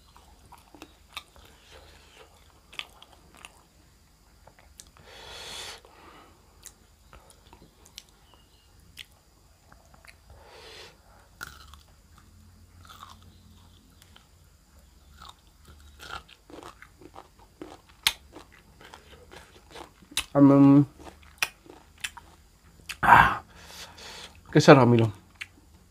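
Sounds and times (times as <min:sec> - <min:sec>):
person chewing crunchy food: 0:00.0 - 0:03.7, 0:06.5 - 0:10.3, 0:11.3 - 0:24.4.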